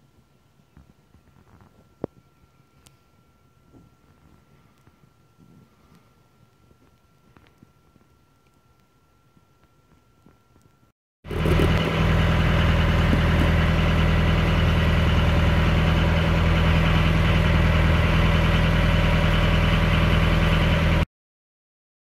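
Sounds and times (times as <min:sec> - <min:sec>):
boat engine running: 0:11.3 - 0:21.0.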